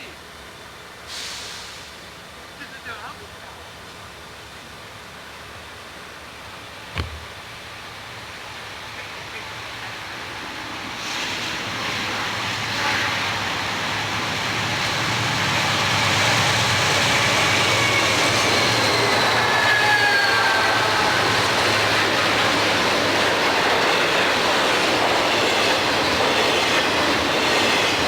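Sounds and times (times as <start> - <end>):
freight train passing: 0.0 - 28.0
high wheel squeal: 15.3 - 22.2.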